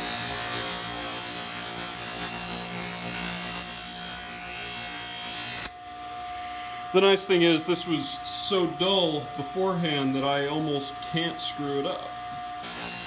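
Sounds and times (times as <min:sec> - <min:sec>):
grinder motor hum: 0:00.0 - 0:05.8, 0:12.6 - 0:13.0
knife grinding on grinder wheel: 0:00.0 - 0:05.8, 0:12.6 - 0:13.0.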